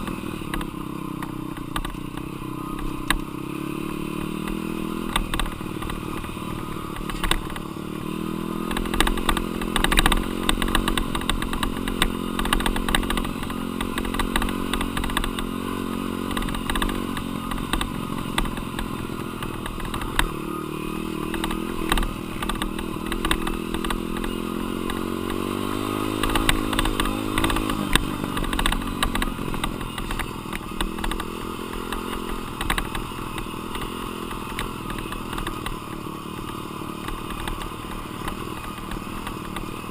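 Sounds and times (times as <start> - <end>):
dirt bike engine revving: 0.0 - 39.9
sharp clicks and knocks: 0.4 - 3.3, 6.9 - 7.7, 16.2 - 20.4, 21.2 - 39.8.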